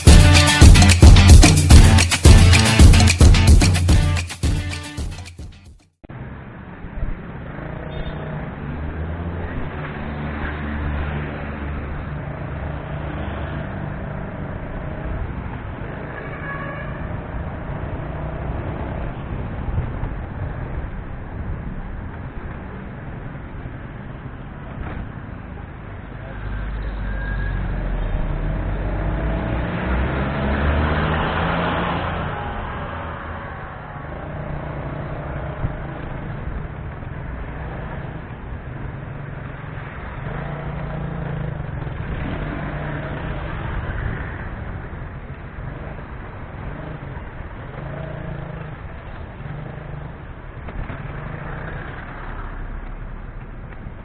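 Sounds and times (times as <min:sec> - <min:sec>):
road traffic: 0:00.0 - 0:54.0
vehicle passing close: 0:06.1 - 0:16.2, 0:26.4 - 0:54.0.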